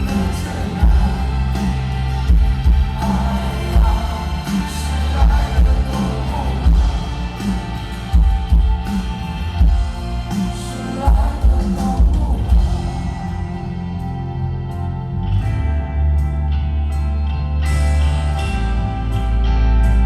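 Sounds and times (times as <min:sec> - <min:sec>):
heavy kick drum: 0:00.0 - 0:01.4, 0:02.2 - 0:04.3
live rock band playing: 0:00.0 - 0:20.0.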